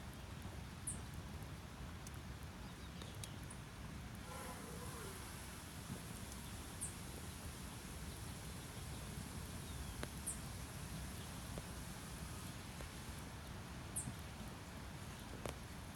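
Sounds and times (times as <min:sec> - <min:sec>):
faint ticks: 0:10.0 - 0:10.4.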